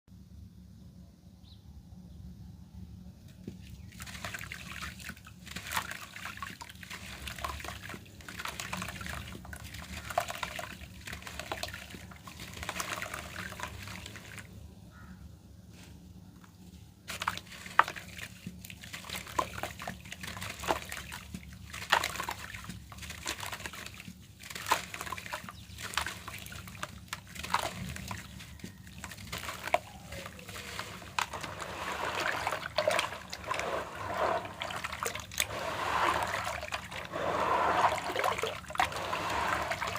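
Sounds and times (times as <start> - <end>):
falling grit: 24.5 - 39.9
dirt crumbling: 27.1 - 39.9.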